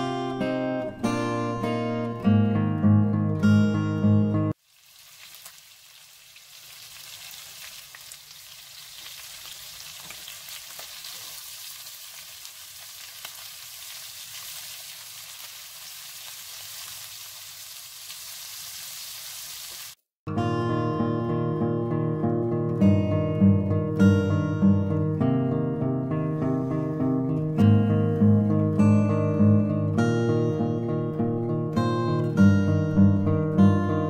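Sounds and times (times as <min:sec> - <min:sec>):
acoustic guitar music: 0:00.0 - 0:04.6, 0:20.3 - 0:34.0
chicken sizzling in a skillet: 0:04.6 - 0:20.0.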